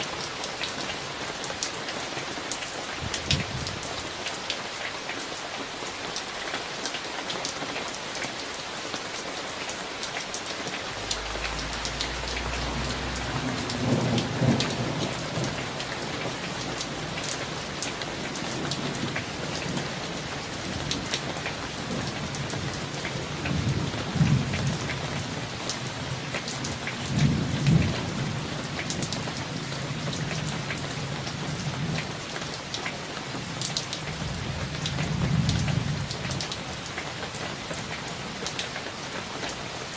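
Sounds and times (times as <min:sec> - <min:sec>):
steady rain falling: 0:00.0 - 0:39.9
thunder rumbling: 0:03.0 - 0:04.1, 0:10.8 - 0:22.9.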